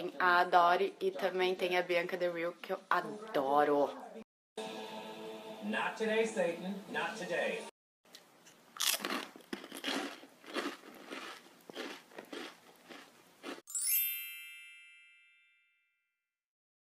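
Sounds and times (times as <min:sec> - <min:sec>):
crunchy biscuits being chewed: 0:08.8 - 0:13.6
bright chime: 0:13.7 - 0:16.1.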